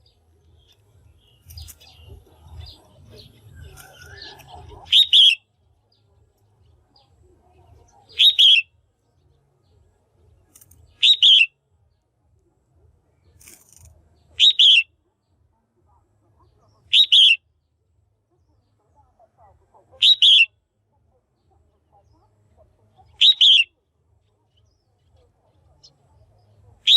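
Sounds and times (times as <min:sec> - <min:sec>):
bird double-note calls: 0:03.7 - 0:05.4, 0:08.2 - 0:08.7, 0:11.0 - 0:11.5, 0:14.4 - 0:14.9, 0:16.9 - 0:17.4, 0:20.0 - 0:20.5, 0:23.2 - 0:23.7.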